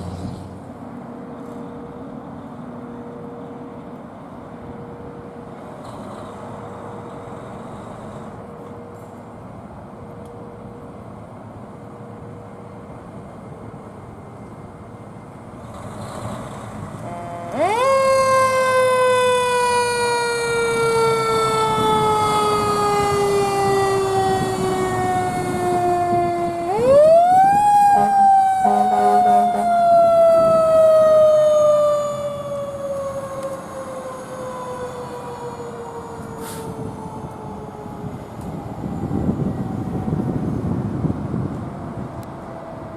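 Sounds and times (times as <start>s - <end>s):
mechanical siren wailing: 17.1s - 42.9s.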